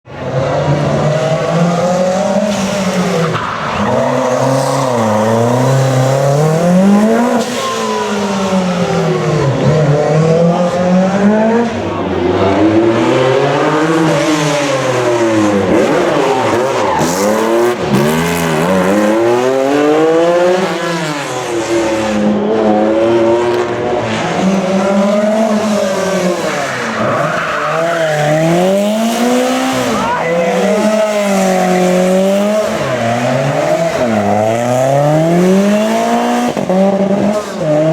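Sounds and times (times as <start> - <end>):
rally car engine revving: 0.0 - 37.9.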